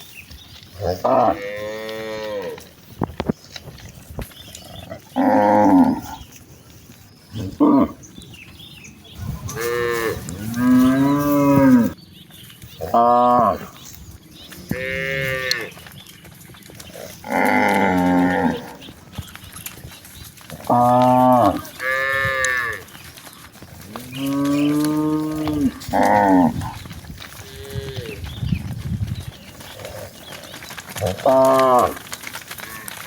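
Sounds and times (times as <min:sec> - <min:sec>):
cows mooing: 0:00.8 - 0:02.7, 0:04.8 - 0:06.2, 0:07.4 - 0:08.0, 0:09.4 - 0:12.0, 0:12.8 - 0:13.8, 0:14.6 - 0:15.8, 0:16.8 - 0:18.9, 0:20.5 - 0:23.0, 0:23.8 - 0:28.4, 0:29.7 - 0:33.0.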